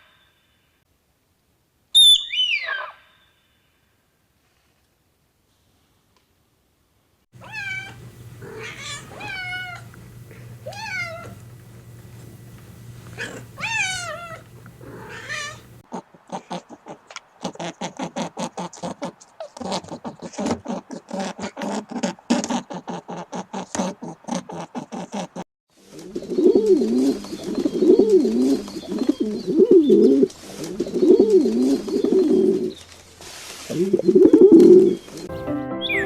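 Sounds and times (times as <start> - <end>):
fast chattering pulses: 7.4 - 11.4
cat meowing: 7.4 - 11.5, 13.1 - 15.8
low hum: 7.4 - 15.8.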